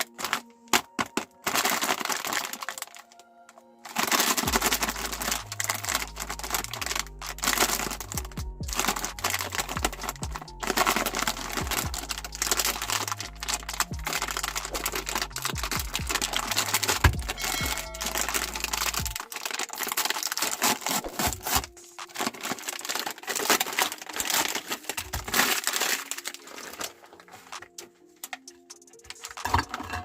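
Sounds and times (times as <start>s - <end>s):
cookies crunching in a grinder: 0.0s - 2.9s, 3.9s - 26.9s
background music with bass: 4.2s - 19.2s.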